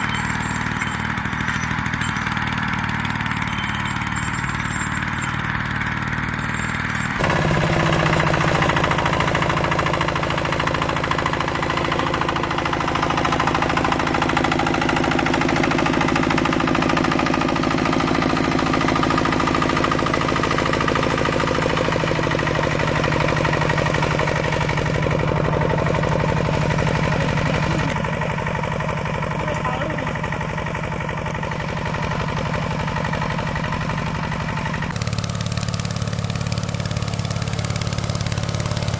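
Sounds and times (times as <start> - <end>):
walk-behind tractor engine chugging: 0.0 - 38.9.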